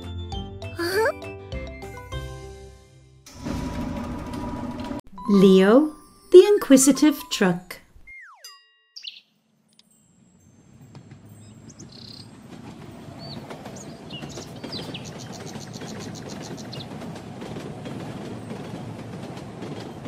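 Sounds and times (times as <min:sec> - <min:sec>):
cartoon train rumble: 0:03.3 - 0:05.0
birds chirping: 0:08.2 - 0:17.4.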